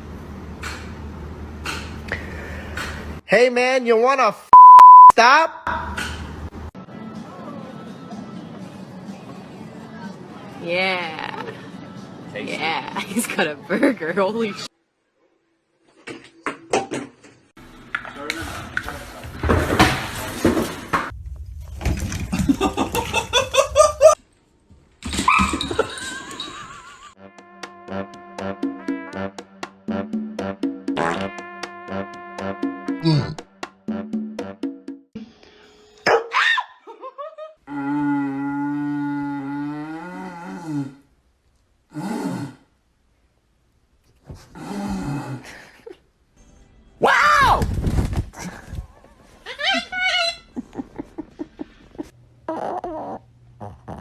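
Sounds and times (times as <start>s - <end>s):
low-pitched animal call: 37.7s - 41.0s, 52.5s - 54.0s.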